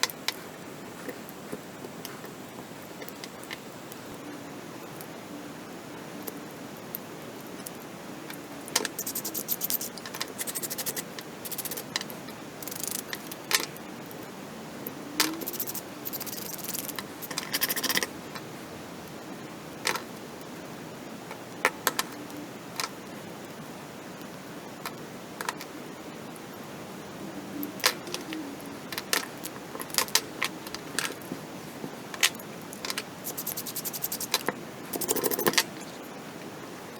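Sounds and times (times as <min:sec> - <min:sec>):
small hard parts scraping and rattling: 0:08.8 - 0:13.6, 0:15.2 - 0:18.1, 0:32.2 - 0:36.2.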